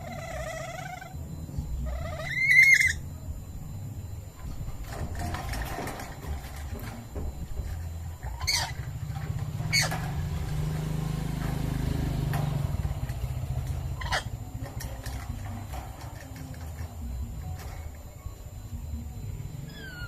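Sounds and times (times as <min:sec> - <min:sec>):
parrot harsh calls: 0:01.9 - 0:03.0, 0:14.0 - 0:14.3.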